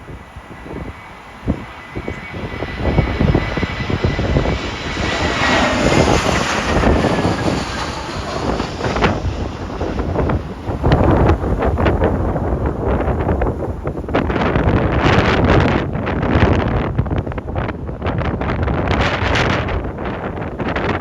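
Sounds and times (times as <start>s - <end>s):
jet engines whining overhead: 0.0s - 21.0s
wind buffeting microphone: 0.0s - 21.0s.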